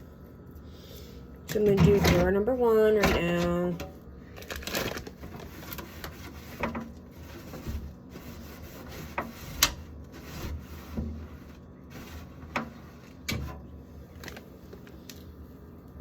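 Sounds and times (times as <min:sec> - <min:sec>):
paper towel wiping plastic: 0:04.4 - 0:13.6.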